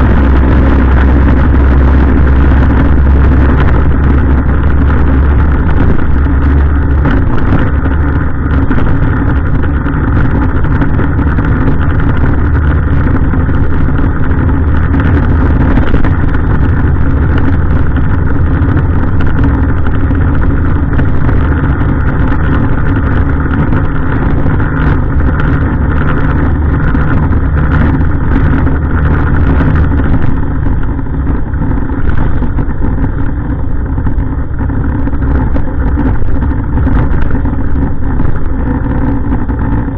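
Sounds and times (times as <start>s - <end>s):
truck diesel engine rumbling: 0.0s - 39.9s.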